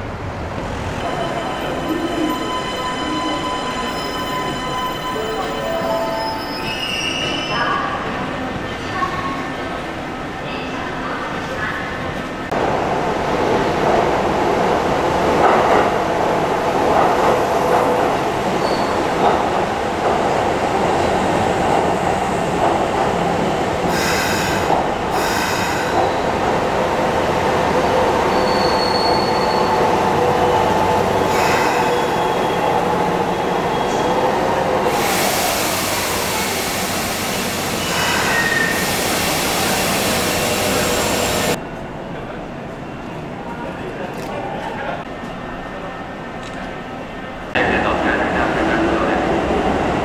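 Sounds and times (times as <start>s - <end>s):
electric train running: 12.6s - 41.6s
wheels squealing: 17.3s - 19.5s, 23.5s - 41.6s
hiss: 23.9s - 26.0s, 34.9s - 41.6s.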